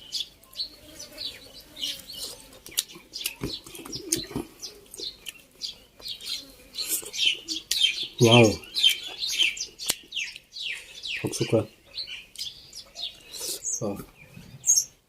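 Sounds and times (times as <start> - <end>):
chewing and mouth smacking: 2.1 - 6.2.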